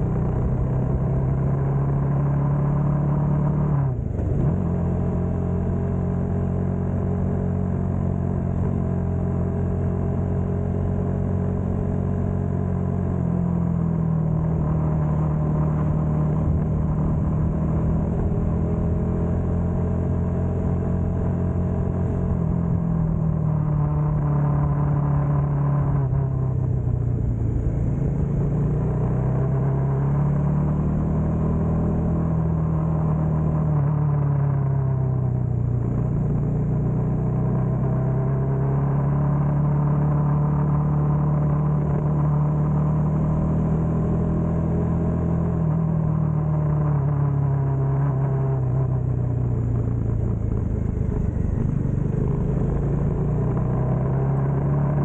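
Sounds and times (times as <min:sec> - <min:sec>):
motorcycle engine running: 0:35.2 - 0:55.0.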